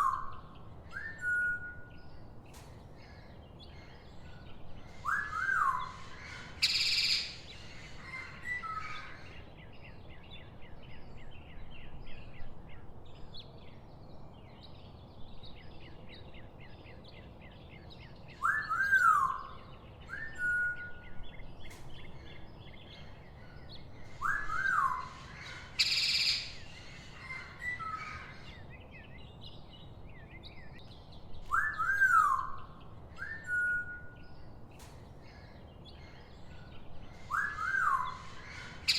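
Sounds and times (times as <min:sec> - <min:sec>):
bird whistled calls: 0:00.0 - 0:01.9, 0:05.0 - 0:07.4, 0:18.4 - 0:21.1, 0:24.2 - 0:28.4, 0:31.4 - 0:34.4, 0:37.3 - 0:38.9.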